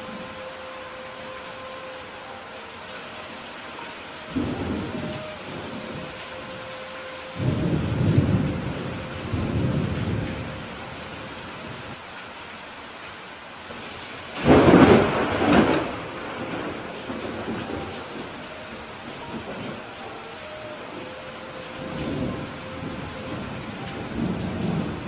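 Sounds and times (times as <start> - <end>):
steady rain: 0.0 - 25.0
thunder rumbling: 4.2 - 12.0, 14.4 - 25.0.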